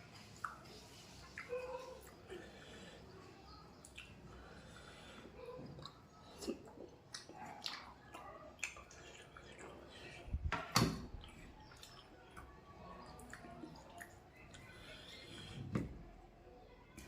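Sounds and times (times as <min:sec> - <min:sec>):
wet chewing and lip smacks: 0:00.1 - 0:02.2, 0:03.8 - 0:04.3, 0:05.6 - 0:10.4, 0:11.1 - 0:14.7.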